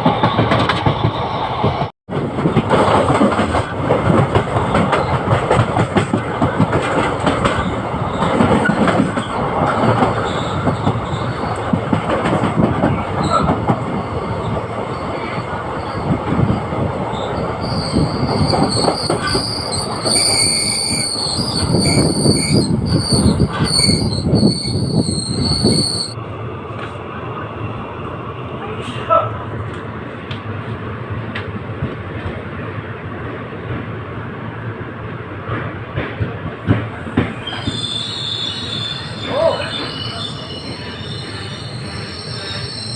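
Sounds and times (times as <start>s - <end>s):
train rumble and wheel clatter: 0.0s - 42.9s
train wheels squealing: 10.2s - 11.7s, 13.2s - 26.2s, 37.3s - 42.9s.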